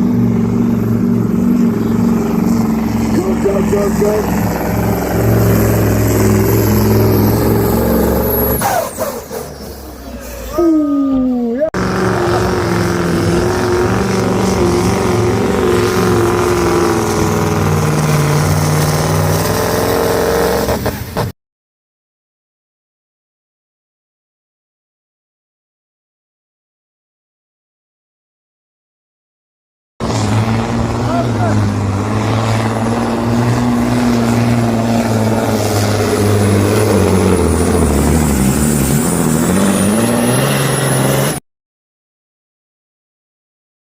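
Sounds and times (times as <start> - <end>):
diesel engine droning at high revs: 0.0 - 10.6, 11.7 - 21.3, 30.0 - 41.4.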